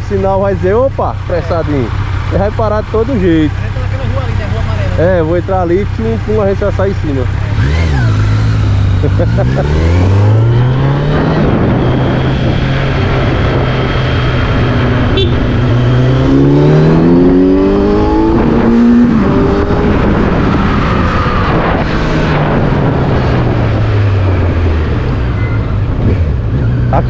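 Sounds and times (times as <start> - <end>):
vehicle engine accelerating: 0.4 - 27.0.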